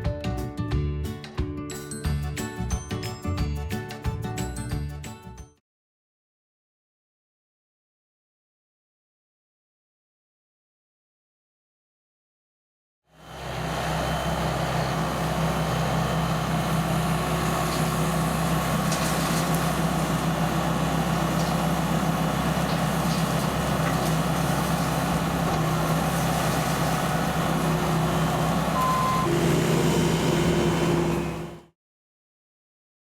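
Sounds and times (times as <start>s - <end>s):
vehicle engine running: 13.2s - 31.7s.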